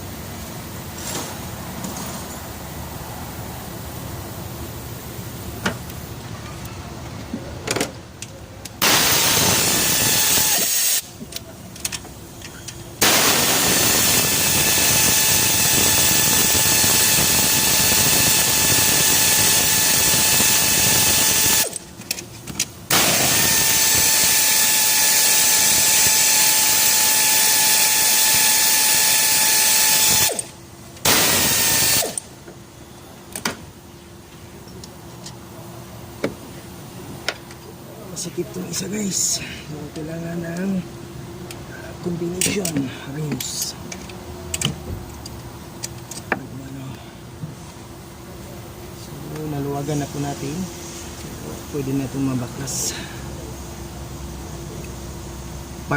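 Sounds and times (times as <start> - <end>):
power tool whining: 8.8 - 11.1, 13.0 - 21.8, 22.9 - 32.3.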